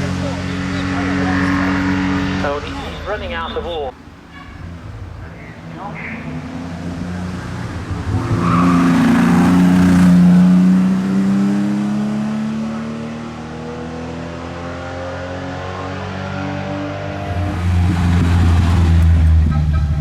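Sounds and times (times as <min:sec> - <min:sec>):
sports car accelerating past: 0:00.0 - 0:03.2, 0:04.6 - 0:20.0.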